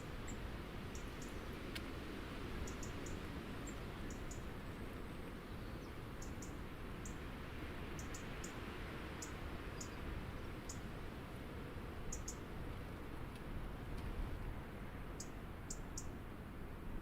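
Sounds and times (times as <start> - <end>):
small birds chip calls: 2.6 - 4.5, 5.2 - 7.2, 8.0 - 8.6, 12.1 - 12.5.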